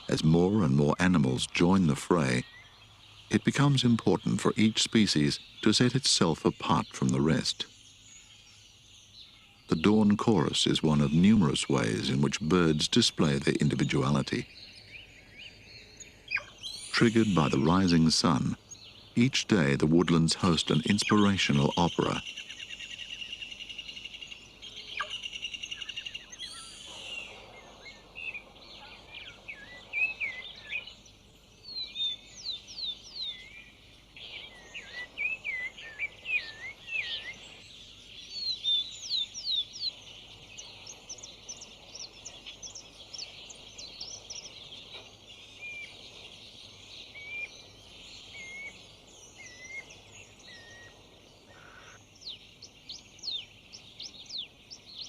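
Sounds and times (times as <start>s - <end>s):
birds singing: 0.0s - 55.0s.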